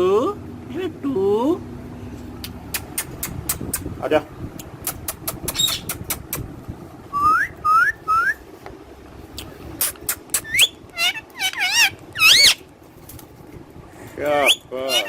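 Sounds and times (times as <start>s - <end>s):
parrot chirps: 4.9s - 6.2s, 9.4s - 12.6s, 14.4s - 15.0s
parrot whistling: 7.2s - 8.4s, 9.8s - 12.6s, 14.4s - 15.0s.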